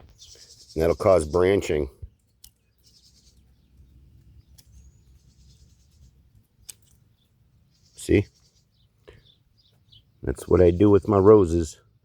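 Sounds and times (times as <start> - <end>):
faint bird chirp: 0.0 - 11.9
pruners clicking: 2.2 - 2.7, 6.4 - 7.0.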